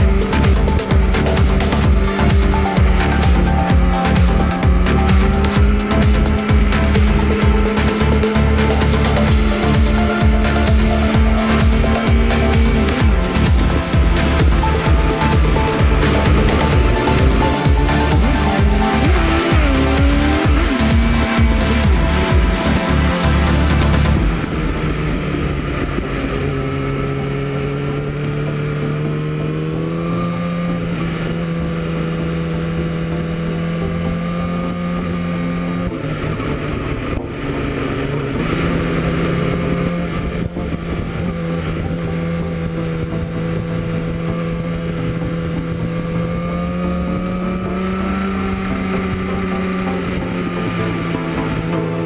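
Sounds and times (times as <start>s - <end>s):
wind on microphone: 0.0s - 26.9s
motorcycle engine running: 0.0s - 52.0s.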